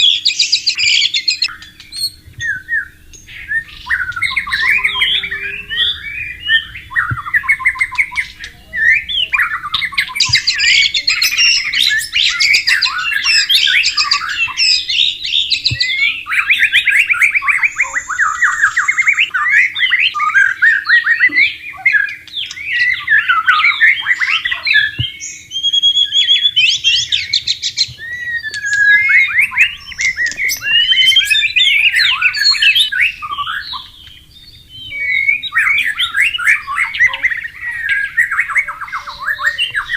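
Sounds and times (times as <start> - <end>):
bird singing whistled phrases and trills: 0.0 - 39.9.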